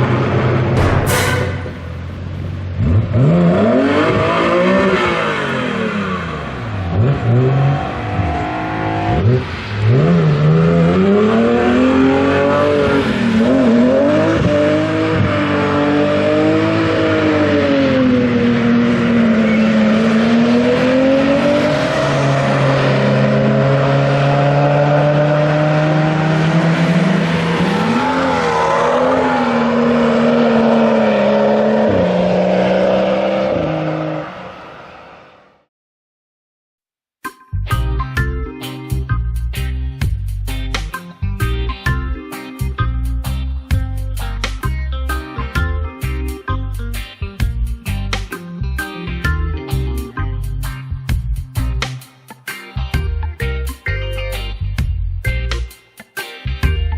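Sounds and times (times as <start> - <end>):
car engine revving: 0.0 - 35.4.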